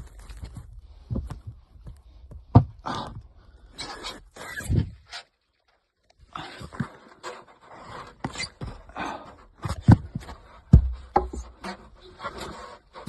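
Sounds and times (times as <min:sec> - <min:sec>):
knocks and thumps of climbing: 0:00.0 - 0:03.5, 0:06.4 - 0:13.0
person breathing hard: 0:08.8 - 0:09.6.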